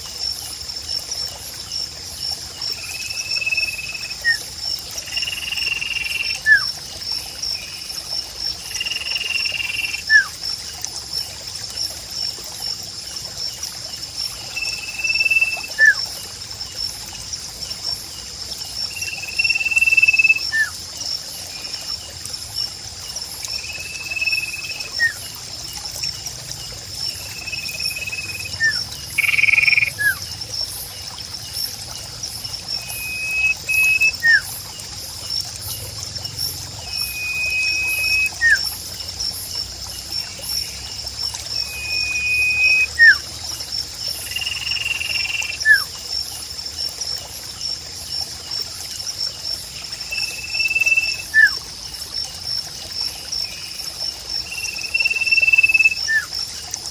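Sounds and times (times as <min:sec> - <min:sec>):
chorus of insects or frogs: 0:00.0 - 0:56.9
trickling water: 0:00.0 - 0:56.9
bird whistling call: 0:32.9 - 0:34.4, 0:36.9 - 0:38.6, 0:41.6 - 0:43.2, 0:50.2 - 0:51.6.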